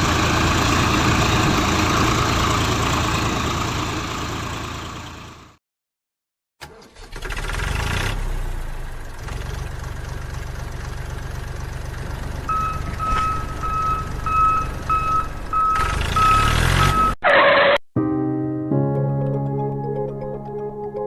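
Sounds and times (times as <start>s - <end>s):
vehicle engine droning: 0.0s - 5.6s, 7.2s - 17.2s
reversing beeper: 12.5s - 17.8s.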